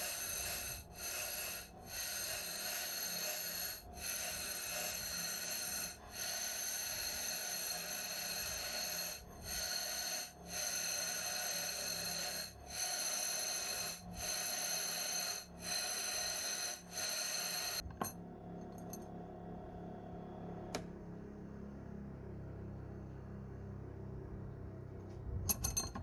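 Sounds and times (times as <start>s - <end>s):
grinder whining on steel: 0.0s - 18.2s.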